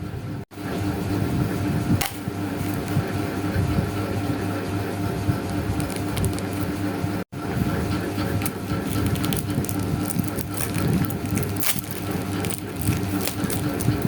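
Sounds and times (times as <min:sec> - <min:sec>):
steady low hum: 0:00.0 - 0:14.0
paper rustling: 0:05.4 - 0:06.9, 0:08.1 - 0:14.0.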